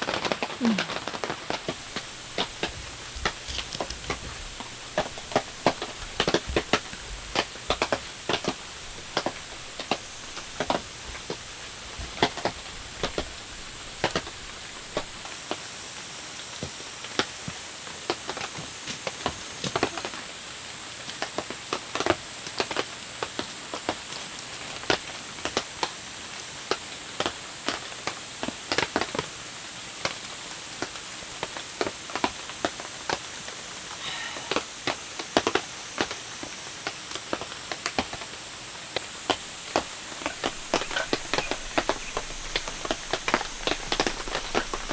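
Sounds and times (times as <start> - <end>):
heavy raindrops tapping: 0.0 - 15.3, 39.2 - 44.9
steady rain: 0.0 - 44.9.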